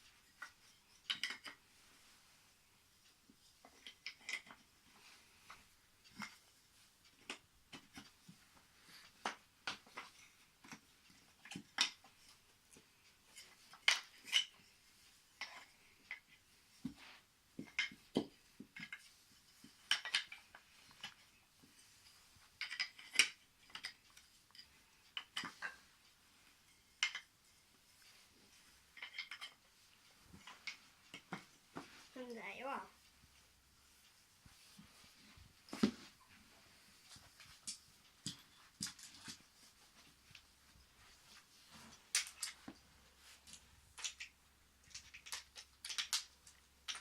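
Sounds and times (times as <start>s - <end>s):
wooden track pieces clicking: 19.9s - 21.2s, 22.6s - 25.8s, 43.5s - 47.0s.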